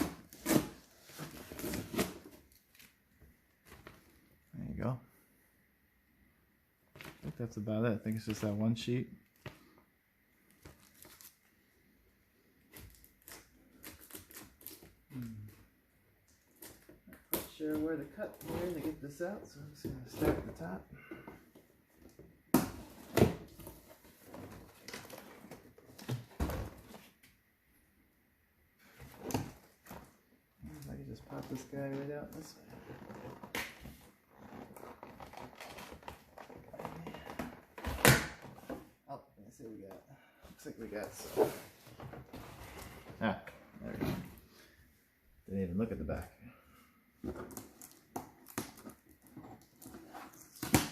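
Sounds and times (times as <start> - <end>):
person humming: 15.1 - 15.5.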